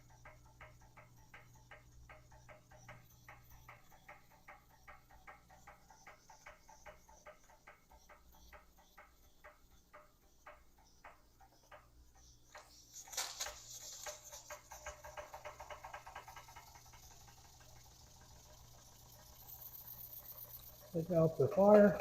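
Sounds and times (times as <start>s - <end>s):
toy steam engine ticking: 0.0s - 22.0s
steam hissing: 12.9s - 22.0s.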